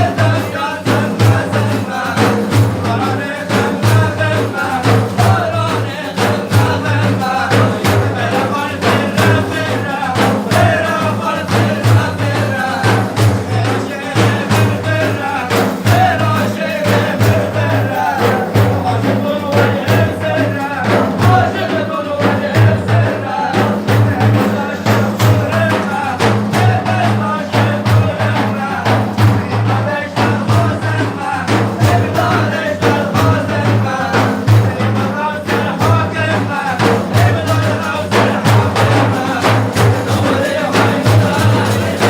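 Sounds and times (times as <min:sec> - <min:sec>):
person singing: 0:00.0 - 0:42.0
steady drum beat: 0:00.0 - 0:42.0.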